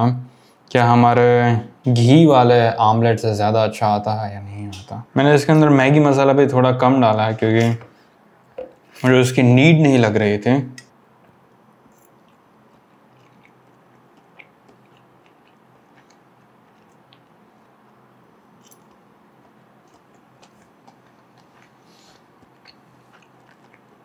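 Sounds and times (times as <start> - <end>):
faint chewing: 11.2 - 24.0.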